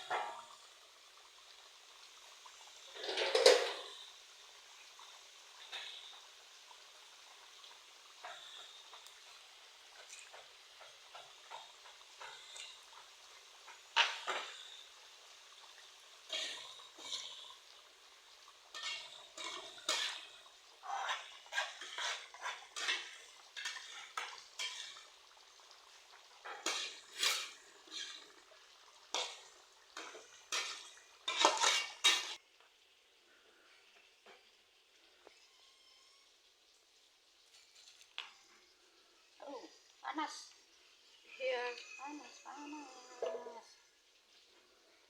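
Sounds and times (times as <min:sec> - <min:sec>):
utensils clinking on dishes: 0:02.9 - 0:04.1, 0:13.9 - 0:14.9, 0:16.3 - 0:17.5, 0:18.7 - 0:25.1, 0:26.4 - 0:28.4, 0:29.2 - 0:32.4.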